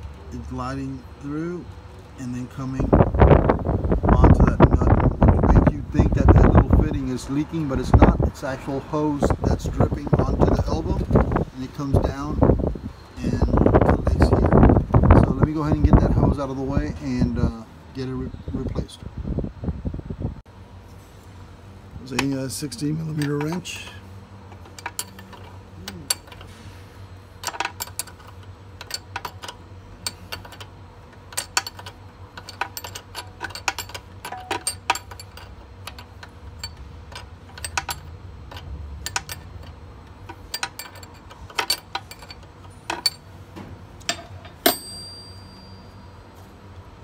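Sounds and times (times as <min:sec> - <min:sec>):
low steady hum: 0:00.0 - 0:47.0
wrench clicking on metal fitting: 0:27.4 - 0:43.2
ringing metal clink: 0:31.3 - 0:39.7, 0:44.1 - 0:46.2.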